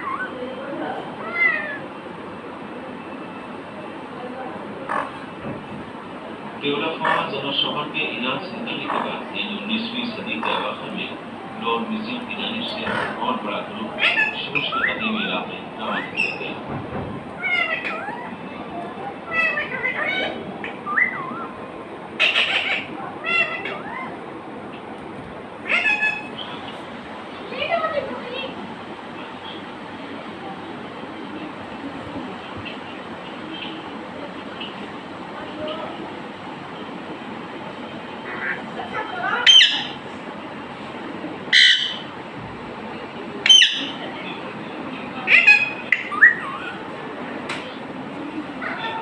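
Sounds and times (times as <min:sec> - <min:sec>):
pet bird calling: 0:00.0 - 0:01.9, 0:04.8 - 0:05.3, 0:07.0 - 0:07.6, 0:08.4 - 0:16.6, 0:17.4 - 0:18.5, 0:19.1 - 0:24.2, 0:25.6 - 0:26.7, 0:39.4 - 0:40.0, 0:41.5 - 0:42.1, 0:43.4 - 0:44.0, 0:45.2 - 0:46.9, 0:48.6 - 0:49.0
steady background hiss: 0:00.0 - 0:49.0.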